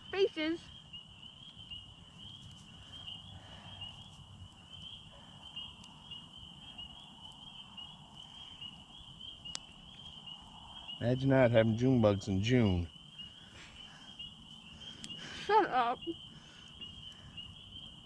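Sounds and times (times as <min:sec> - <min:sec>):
insects trilling: 0:00.0 - 0:18.0
faint clicks: 0:09.5 - 0:10.2, 0:14.5 - 0:15.2.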